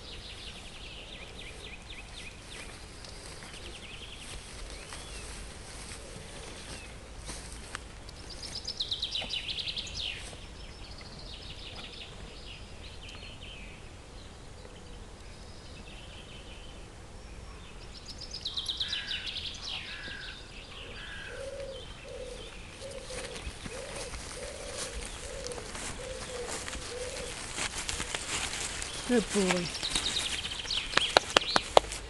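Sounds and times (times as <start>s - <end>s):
songbird trilling and chirping: 8.1s - 13.8s, 17.3s - 31.9s
pigeon cooing: 20.9s - 30.1s.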